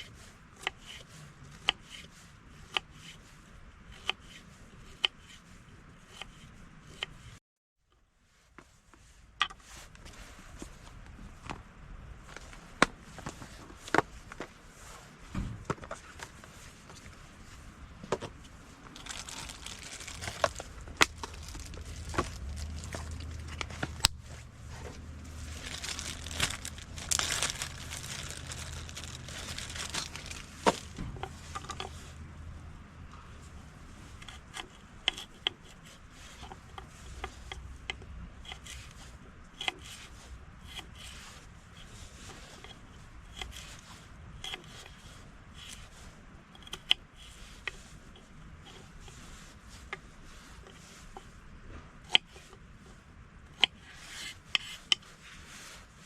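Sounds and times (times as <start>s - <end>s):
crinkling and rustling: 8.4s - 32.3s
low steady rumble: 9.2s - 46.6s.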